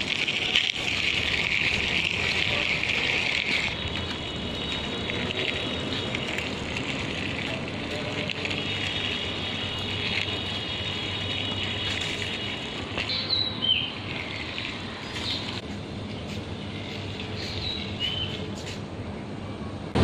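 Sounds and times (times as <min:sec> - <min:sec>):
outdoor background noise: 0:00.0 - 0:20.0
bird chirping: 0:13.0 - 0:18.7.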